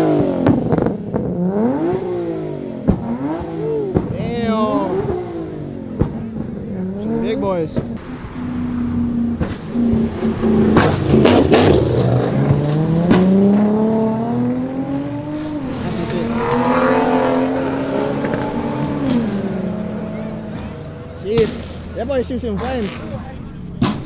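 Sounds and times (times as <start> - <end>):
car engine revving: 0.0 - 24.0
exhaust pops and bangs: 0.3 - 6.9, 7.5 - 8.3, 8.9 - 13.8, 20.4 - 24.0.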